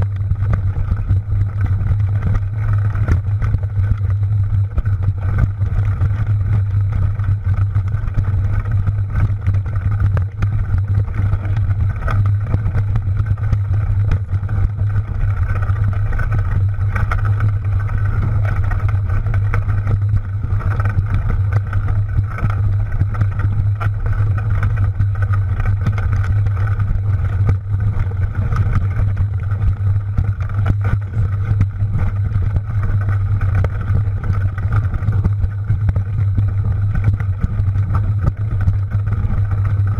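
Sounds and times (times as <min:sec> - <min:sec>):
bike rattles and clicks: 0:00.0 - 0:39.9
wind rumble on microphone: 0:00.0 - 0:39.9.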